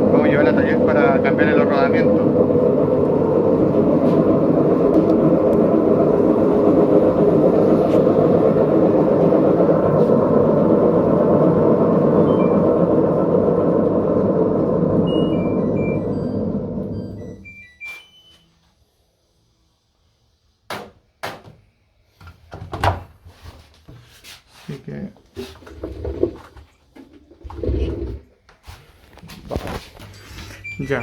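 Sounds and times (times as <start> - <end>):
washing machine drum spinning: 0.0 - 17.6
short electronic beeps: 15.1 - 18.5, 30.6 - 31.0.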